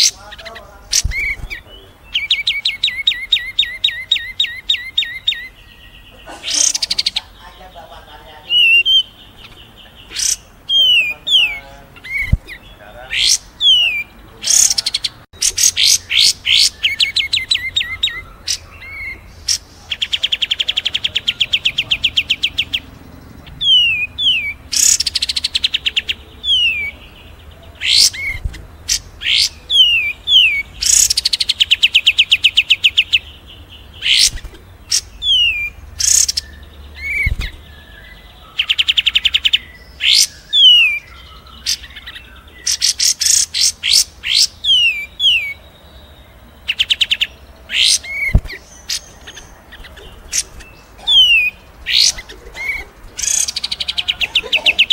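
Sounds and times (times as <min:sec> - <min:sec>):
sharp high bird chips: 0:00.0 - 0:07.4, 0:08.5 - 0:22.8, 0:46.8 - 0:54.9
fast rattling bird trill: 0:00.0 - 0:45.6, 0:46.6 - 0:54.9
songbird whistles: 0:34.0 - 0:45.6.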